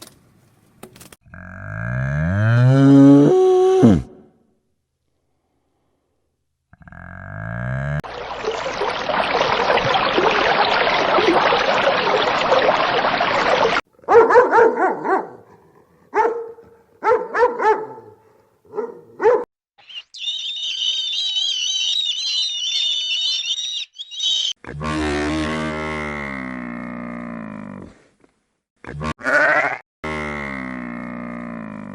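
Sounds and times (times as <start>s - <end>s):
dog barking: 14.0s - 19.5s
high warbling animal call: 19.8s - 24.6s.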